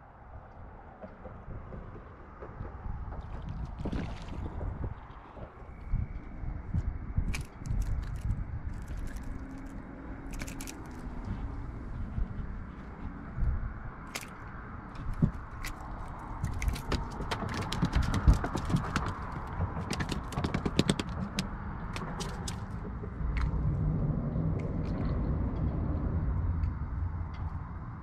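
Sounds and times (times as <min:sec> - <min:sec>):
steady low rumble: 0:00.0 - 0:28.0
fish clicking and knocking on dock: 0:07.3 - 0:11.3, 0:14.0 - 0:23.6.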